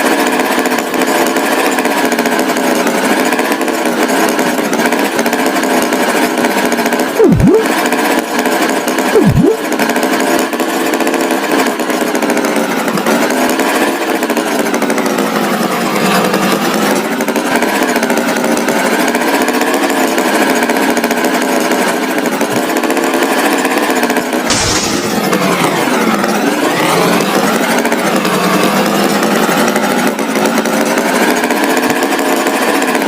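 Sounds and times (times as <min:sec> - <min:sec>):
swooping sound effects: 0:07.2 - 0:07.8, 0:09.2 - 0:09.7, 0:24.5 - 0:26.1.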